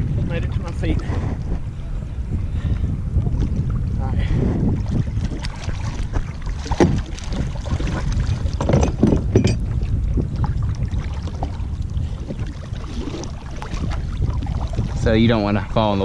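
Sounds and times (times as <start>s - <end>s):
wind on microphone: 0.0s - 16.0s
wading through shallow water: 0.7s - 16.0s.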